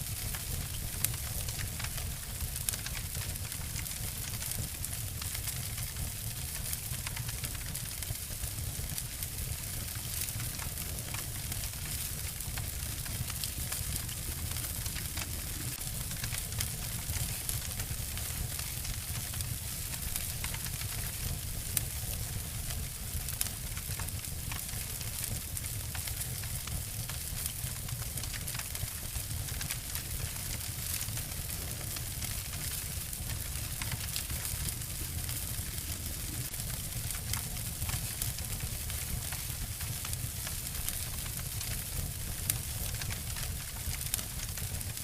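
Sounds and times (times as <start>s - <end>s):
wood fire crackling and snapping: 0.0s - 45.0s
steady hiss: 11.4s - 20.1s.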